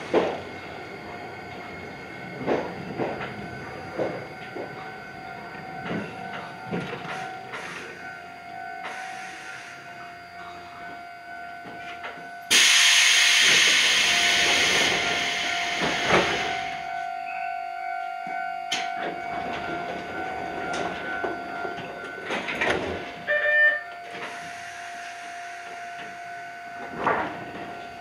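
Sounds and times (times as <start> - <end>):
train running hum: 0.0 - 28.0
hissing air rush: 12.5 - 16.8.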